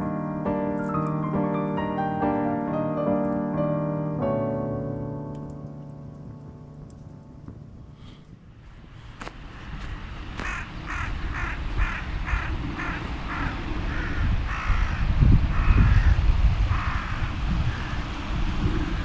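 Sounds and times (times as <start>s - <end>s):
wind rumbling on microphone: 6.2s - 19.0s
crow cawing: 10.4s - 18.0s.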